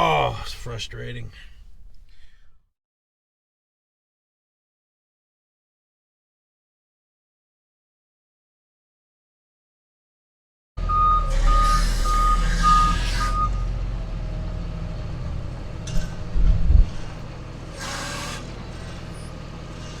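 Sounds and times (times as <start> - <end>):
reversing alarm beeps: 10.8 - 13.8
engine running: 10.8 - 20.0.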